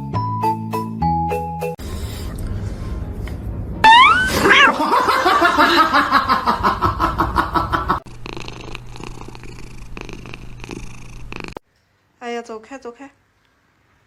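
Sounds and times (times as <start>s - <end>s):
cat meowing: 3.8s - 4.8s.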